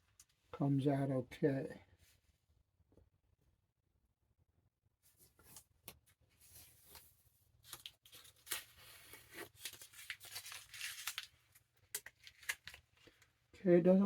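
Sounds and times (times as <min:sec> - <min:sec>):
tape peeling and tearing: 0:07.7 - 0:13.0.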